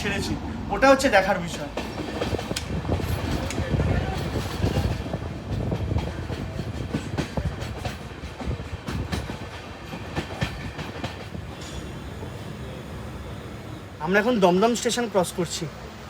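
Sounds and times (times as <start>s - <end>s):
train low rumble: 0.0s - 16.0s
train wheels clattering over joints: 1.4s - 12.5s.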